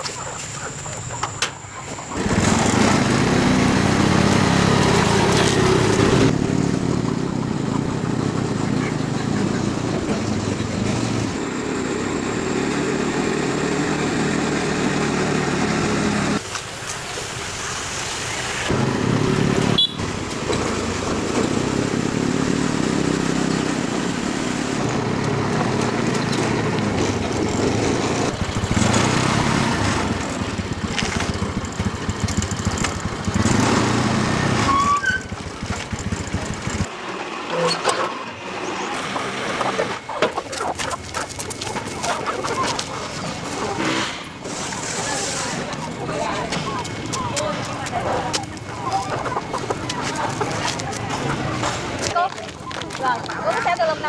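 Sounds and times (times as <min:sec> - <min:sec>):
motorbike engine running: 0:02.1 - 0:16.4, 0:18.7 - 0:36.9.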